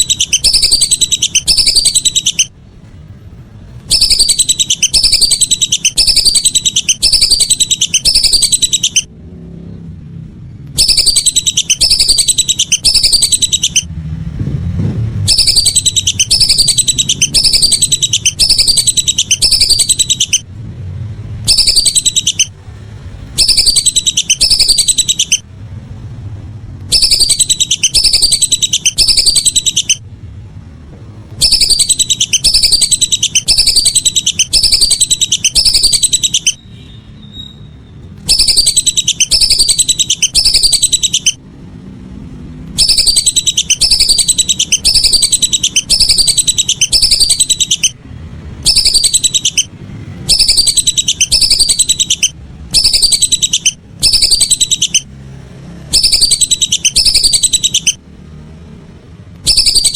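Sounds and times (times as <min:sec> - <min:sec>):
whistling duck calls: 0:00.0 - 0:02.5, 0:03.9 - 0:09.1, 0:10.8 - 0:13.9, 0:15.3 - 0:20.5, 0:21.5 - 0:22.6, 0:23.3 - 0:25.4, 0:26.9 - 0:30.0, 0:31.4 - 0:41.4, 0:42.8 - 0:48.0, 0:48.6 - 0:55.1, 0:55.9 - 0:58.0, 0:59.4 - 0:59.9.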